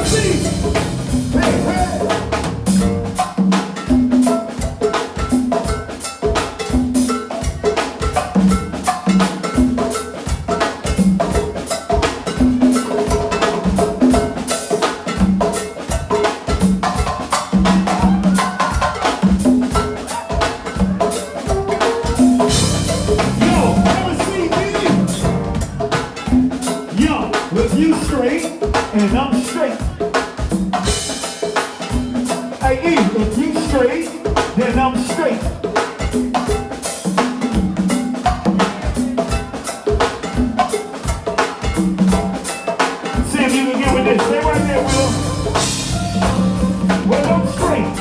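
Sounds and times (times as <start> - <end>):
repeating low riff: 0.0 - 3.2, 22.5 - 25.8, 44.0 - 48.0
drum kit: 0.0 - 48.0
hand percussion: 0.0 - 48.0.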